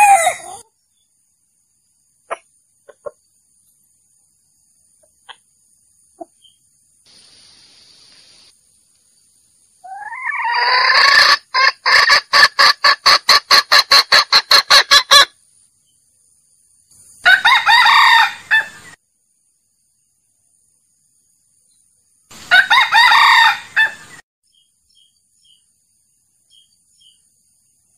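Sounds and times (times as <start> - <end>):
junglefowl crowing and clucking: 0.0 - 0.8, 2.3 - 3.3, 9.8 - 15.4, 17.1 - 19.0, 22.3 - 24.2.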